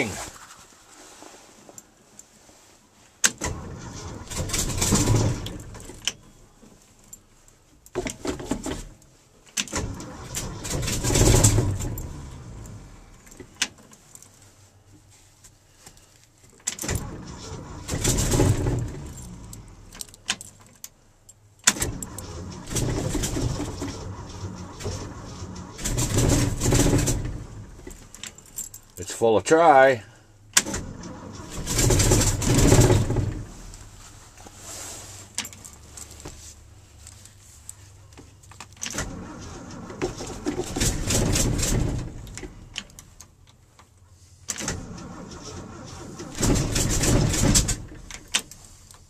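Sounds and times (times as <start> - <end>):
engine cranking on starter: 3.3 - 6.1, 9.6 - 13.1, 16.7 - 20.1, 21.7 - 28.3, 30.6 - 33.9, 38.8 - 43.0, 44.5 - 48.6.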